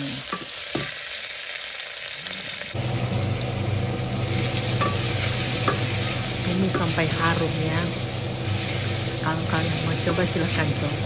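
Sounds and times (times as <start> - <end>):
vegetables sizzling in a pot: 0.0 - 11.0
steady low hum: 2.8 - 11.0.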